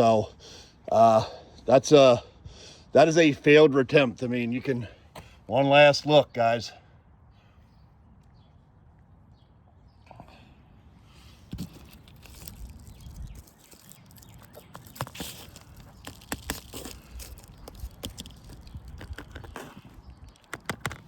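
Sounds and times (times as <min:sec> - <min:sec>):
crackles and scuffs on shingle roof: 0:11.0 - 0:21.0.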